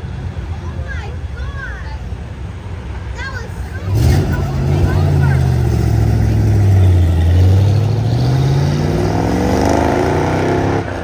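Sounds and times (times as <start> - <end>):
car engine accelerating: 3.8 - 11.0.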